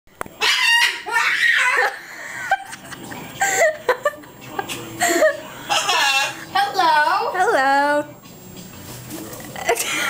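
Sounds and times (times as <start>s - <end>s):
parrot squawking and chirping: 0.4s - 2.0s, 5.6s - 6.8s.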